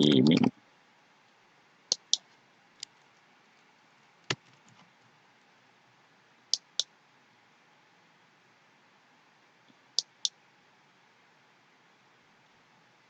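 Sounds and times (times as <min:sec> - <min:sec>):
faint steady hiss: 0:00.0 - 0:13.0
computer mouse clicking: 0:01.9 - 0:02.2, 0:10.0 - 0:10.3.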